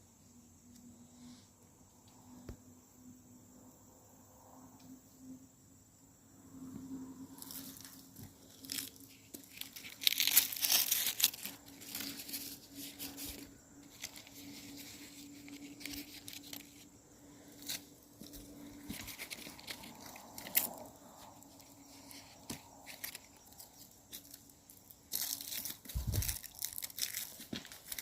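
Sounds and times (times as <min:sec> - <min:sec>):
footsteps on dry leaves: 0:07.4 - 0:16.8, 0:21.6 - 0:28.0.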